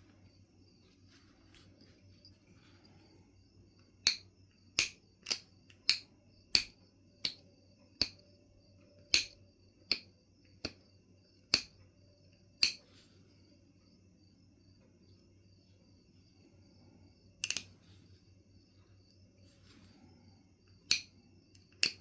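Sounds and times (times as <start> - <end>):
stone knapping clicks: 4.0 - 7.4, 8.0 - 8.2, 9.0 - 10.8, 11.5 - 11.8, 12.6 - 12.8, 17.4 - 17.8, 20.8 - 22.0.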